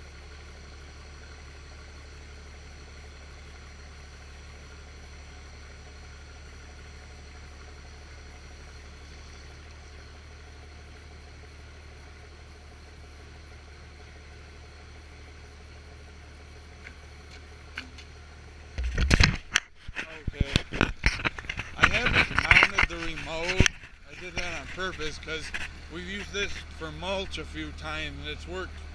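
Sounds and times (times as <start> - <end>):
low machine hum: 0.0 - 28.9.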